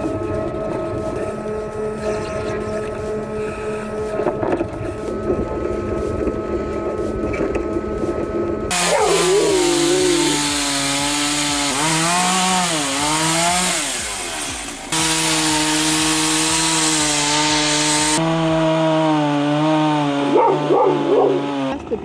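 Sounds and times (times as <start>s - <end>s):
chainsaw running at high revs: 8.7s - 21.9s.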